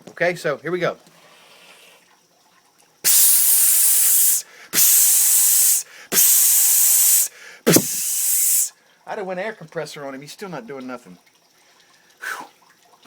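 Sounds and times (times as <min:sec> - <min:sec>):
compressed air hissing blasts: 0:03.1 - 0:08.7.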